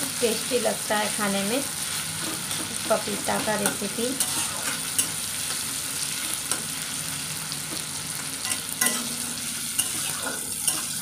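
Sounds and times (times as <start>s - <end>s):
vegetables sizzling in hot oil: 0.0s - 11.0s
spatula scraping and tapping pan: 2.2s - 5.6s, 7.7s - 9.2s, 9.8s - 11.0s.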